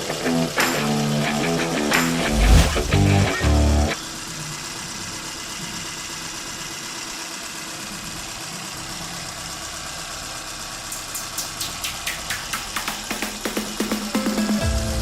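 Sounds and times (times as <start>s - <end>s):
car engine idling: 2.3s - 13.8s.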